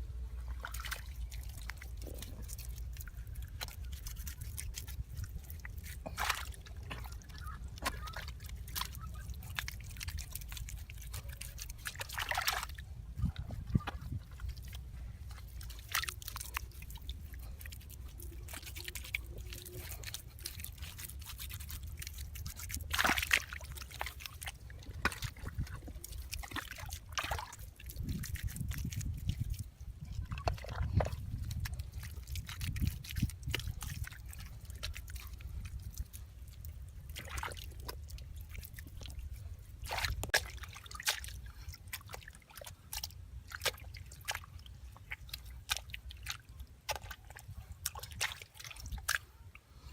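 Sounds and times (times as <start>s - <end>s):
steady low rumble: 0.0s - 18.6s
water sloshing and dripping: 0.1s - 49.9s.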